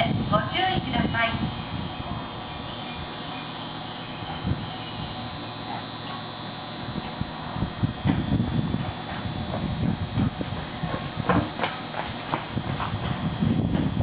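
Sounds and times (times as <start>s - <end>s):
steady high-pitched tone: 0.0s - 14.0s
train low rumble: 7.0s - 14.0s.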